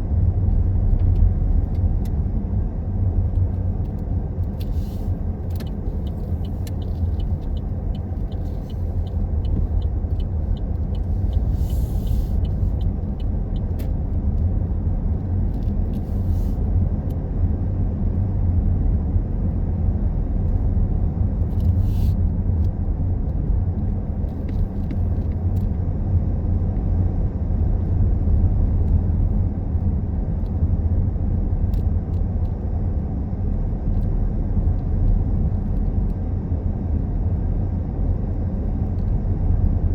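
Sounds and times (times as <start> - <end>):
car engine and tyres rumbling: 0.0 - 39.9
faint regular ticking: 5.6 - 11.8.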